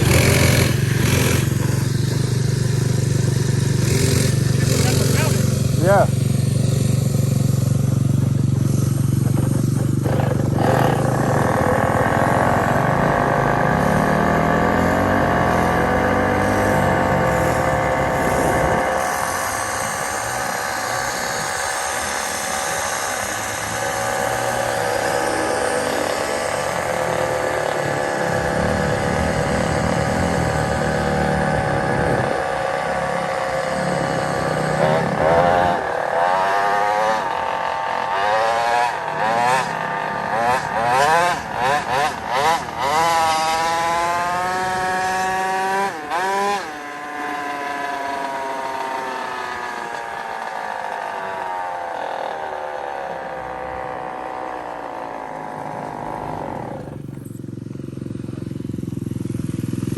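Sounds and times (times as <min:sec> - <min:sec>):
small motorbike engine running: 0:00.0 - 0:59.9.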